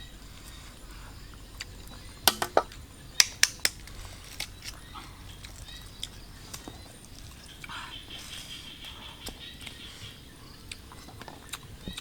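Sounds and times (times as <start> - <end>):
faint outdoor background: 0.0 - 12.0
sharp clicks: 2.3 - 3.9.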